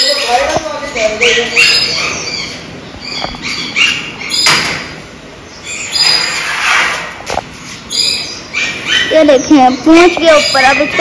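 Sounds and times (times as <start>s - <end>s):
birds chirping: 0.0s - 11.0s
sharp knock: 4.4s - 4.9s
rasping scrape: 6.2s - 7.2s.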